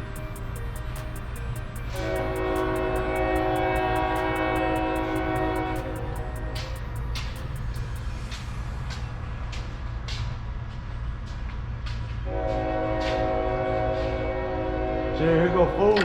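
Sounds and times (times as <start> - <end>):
horn sounding held chord: 0.0 - 8.2, 12.3 - 16.0
steady low rumble: 0.0 - 13.2.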